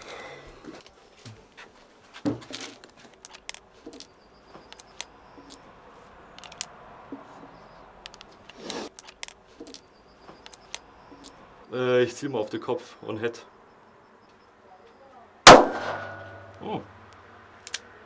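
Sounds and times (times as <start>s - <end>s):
metallic clicks of revolver handling: 2.5s - 4.1s, 4.7s - 5.6s, 6.4s - 6.7s, 8.0s - 9.8s, 10.4s - 11.4s, 15.5s - 17.9s.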